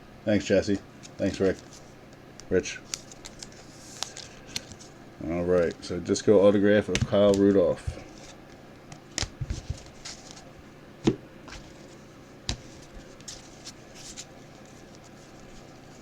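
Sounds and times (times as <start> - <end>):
cards being flipped and set down: 2.4 - 4.9, 6.9 - 11.8.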